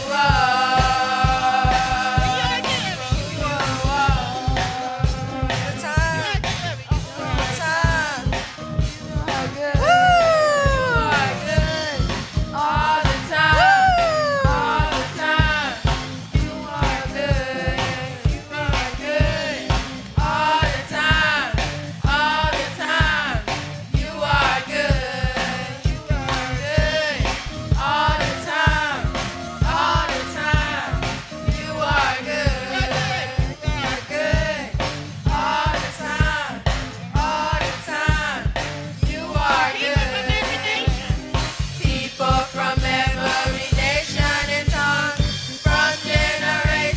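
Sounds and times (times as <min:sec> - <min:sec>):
drums and bass: 0:00.0 - 0:46.9
people singing worship song: 0:00.0 - 0:46.9.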